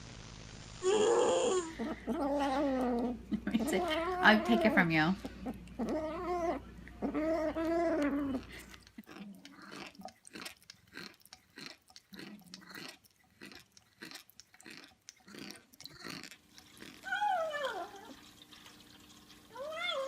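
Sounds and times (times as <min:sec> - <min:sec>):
cat chewing crunchy food: 0:05.2 - 0:17.1.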